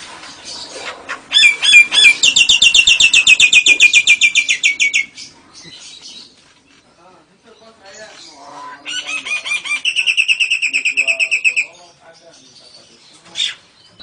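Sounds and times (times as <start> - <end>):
cage bird calling: 0.2 - 14.0.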